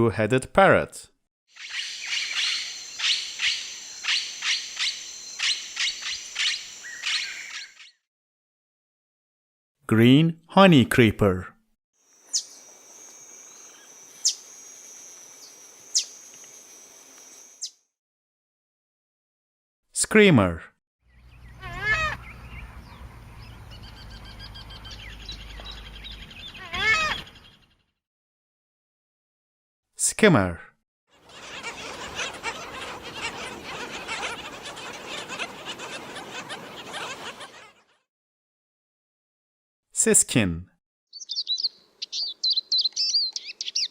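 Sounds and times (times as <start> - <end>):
flock of birds chattering: 1.6 - 7.7, 31.2 - 37.8
bird chip calls: 1.6 - 8.0, 12.2 - 16.6, 21.1 - 27.7, 31.2 - 37.9, 41.1 - 43.9.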